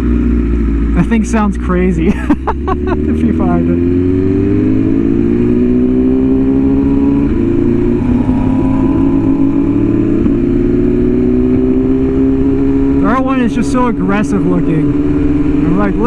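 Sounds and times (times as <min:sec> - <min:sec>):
wind rushing: 0:04.5 - 0:13.0.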